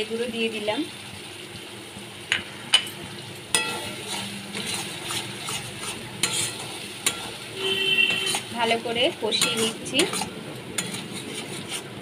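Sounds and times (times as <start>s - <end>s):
paste sizzling in oil: 0.0s - 12.0s
metal spatula knocking on pan: 9.3s - 10.2s.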